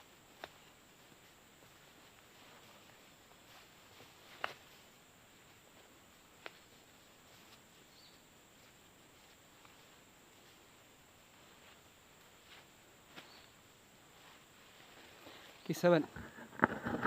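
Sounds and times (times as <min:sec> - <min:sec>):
insect drone: 0:00.0 - 0:17.0
faint high chirp: 0:07.8 - 0:08.3, 0:13.2 - 0:13.6.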